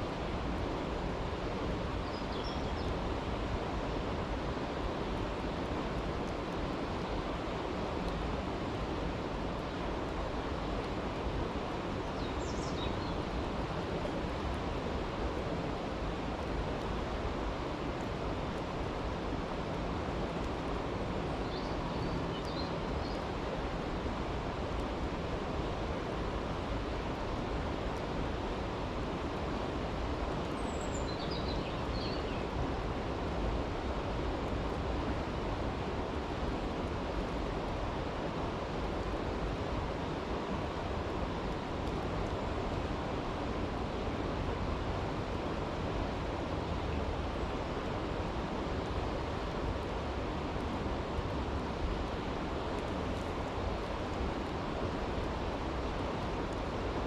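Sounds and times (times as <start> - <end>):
creek rushing: 31.8 - 57.0.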